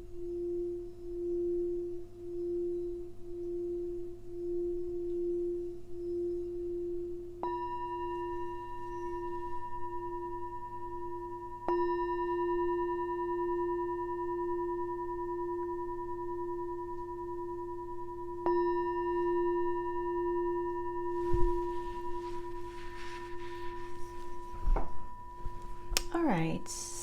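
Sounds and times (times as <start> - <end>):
singing bowl ringing: 0.0 - 27.0
short thump: 21.3 - 22.6.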